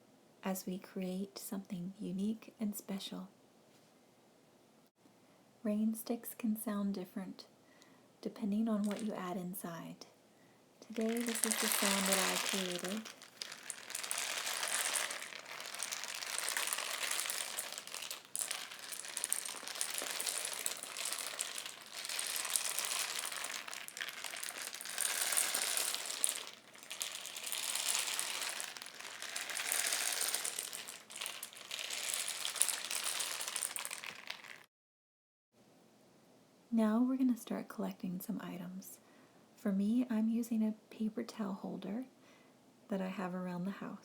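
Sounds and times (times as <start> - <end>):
rain stick rushing trickle: 8.8 - 9.1, 10.8 - 34.7.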